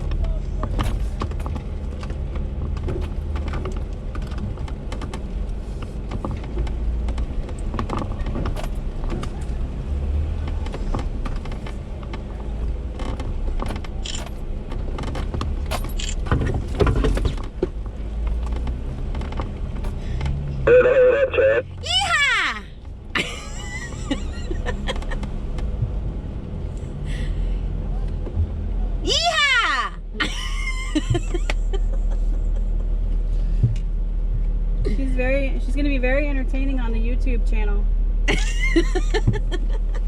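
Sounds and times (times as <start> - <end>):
vehicle body clicks and rattles: 0.0 - 27.2, 27.9 - 29.2, 30.2 - 36.4, 38.3 - 40.0
engine idling: 0.0 - 29.2.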